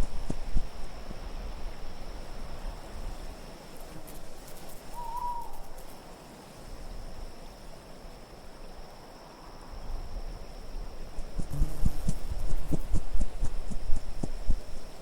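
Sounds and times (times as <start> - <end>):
faint high ticks: 0.0 - 0.9, 11.2 - 15.0
wind: 0.0 - 15.0
owl hooting: 4.9 - 5.8
thin high whistle: 4.9 - 5.8.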